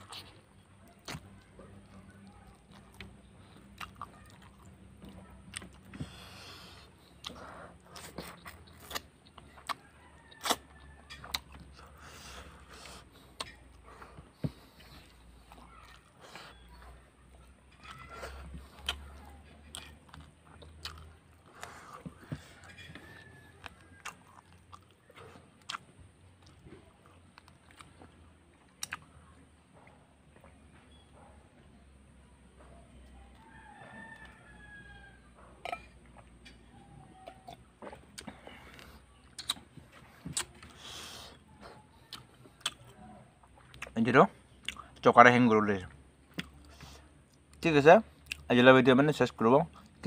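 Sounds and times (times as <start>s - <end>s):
wet chewing and lip smacks: 0.0s - 31.0s, 35.6s - 45.1s, 45.8s - 48.6s
lip and tongue clicks: 10.4s - 13.8s, 27.3s - 29.1s, 37.2s - 42.9s
sharp mouth clicks: 39.4s - 40.7s.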